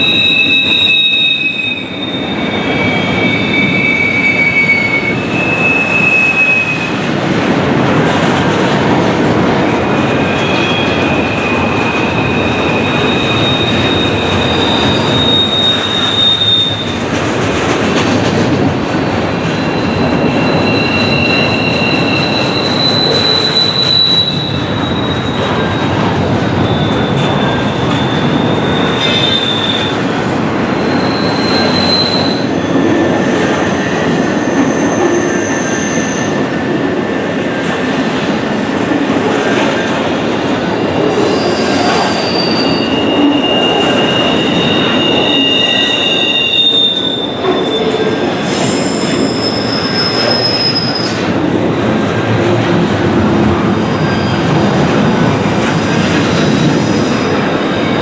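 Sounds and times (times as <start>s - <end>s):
high-pitched wheel squeals: 0.0s - 7.1s, 9.9s - 17.1s, 19.0s - 30.1s, 30.8s - 36.5s, 40.6s - 51.4s
train wheels rumbling on rails: 0.0s - 58.0s.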